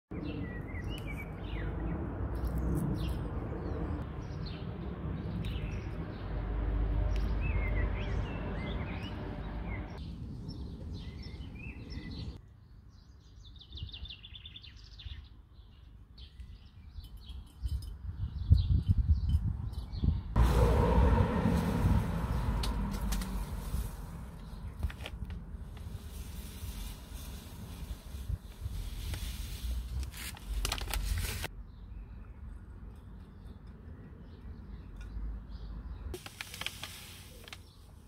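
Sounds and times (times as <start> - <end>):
small birds chirping and singing: 0.1 - 6.4, 7.1 - 20.4, 31.4 - 36.2
low rumble: 20.1 - 28.3.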